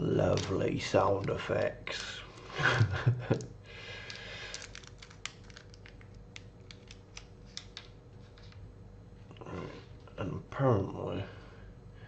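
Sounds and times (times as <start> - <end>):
plastic parts clicking: 4.0 - 8.6.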